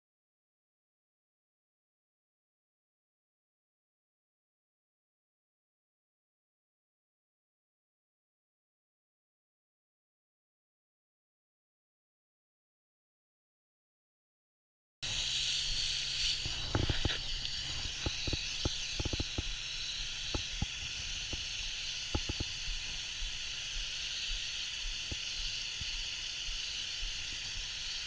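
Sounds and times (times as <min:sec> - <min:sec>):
water mist spraying from nozzle: 0:15.0 - 0:28.0.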